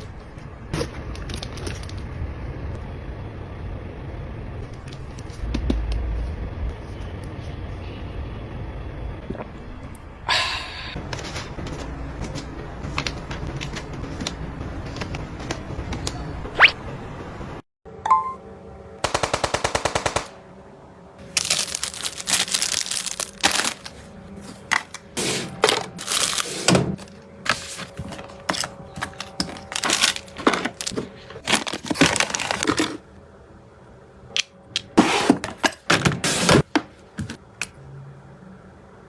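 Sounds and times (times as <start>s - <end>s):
rustling scraping and clattering: 23.4s - 33.1s.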